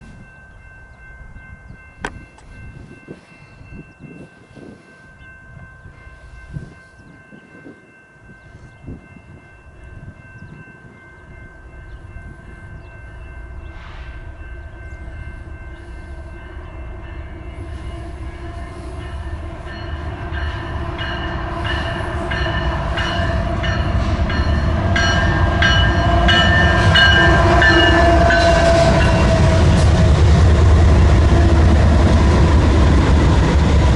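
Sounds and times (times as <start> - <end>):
train engine rumble: 0.0 - 33.9
train air horn: 13.7 - 14.4, 25.8 - 30.1.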